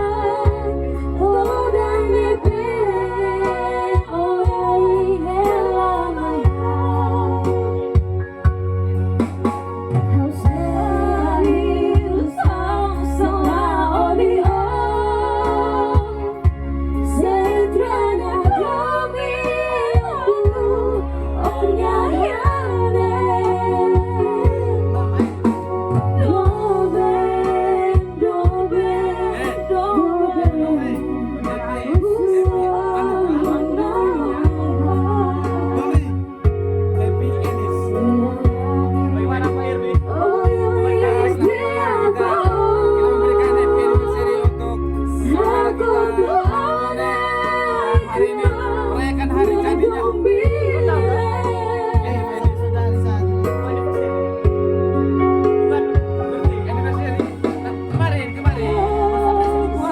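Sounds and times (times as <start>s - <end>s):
backing music with bass and drums: 0.0s - 59.9s
person singing slow melody: 10.2s - 59.9s
person singing: 58.4s - 59.9s.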